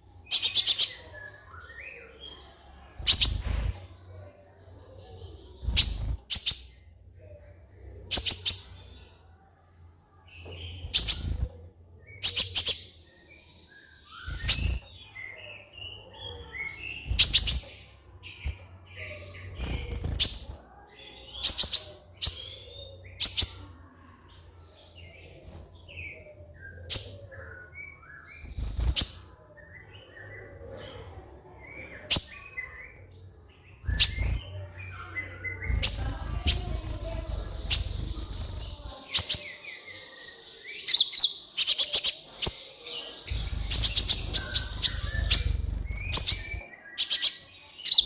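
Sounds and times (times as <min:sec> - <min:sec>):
soft bird twittering: 0:00.0 - 0:09.5, 0:10.1 - 0:48.0
sunbird high sharp chirps: 0:05.7 - 0:06.8, 0:17.0 - 0:17.8, 0:35.6 - 0:39.5, 0:43.3 - 0:48.0.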